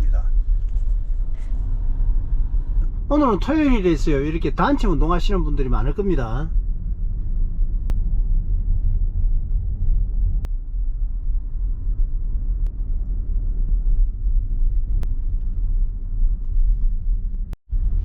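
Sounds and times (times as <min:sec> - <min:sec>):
road and tyre rumble in car: 0:00.0 - 0:04.0.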